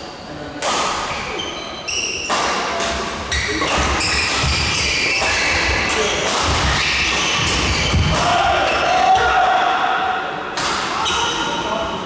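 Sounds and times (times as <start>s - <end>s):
racket hitting shuttlecock: 0.6s - 1.2s, 2.2s - 9.3s, 10.6s - 11.2s.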